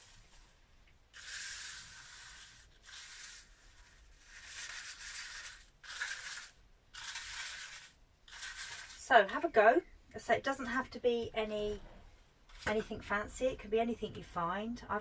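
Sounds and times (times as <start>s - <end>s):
brush sweeping across paper: 0.0s - 9.0s.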